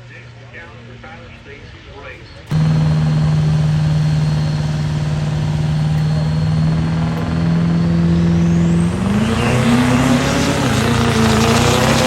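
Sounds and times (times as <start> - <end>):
diesel truck engine revving: 2.4 - 12.0
high whistle rising in pitch: 2.5 - 12.0.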